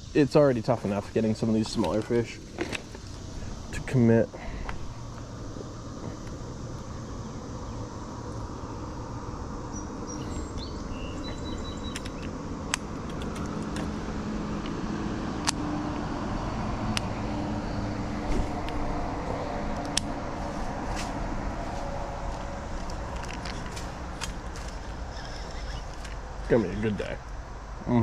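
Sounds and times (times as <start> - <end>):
low hum: 0.0 - 28.0
low outdoor rumble: 0.0 - 28.0
sharp clicks: 10.6 - 14.0.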